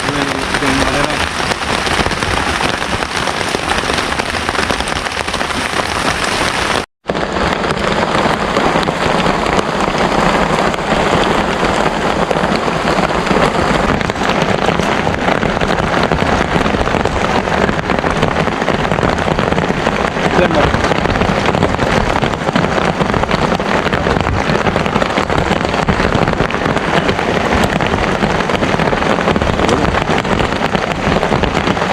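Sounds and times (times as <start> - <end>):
heavy rain pouring: 0.0 - 31.9.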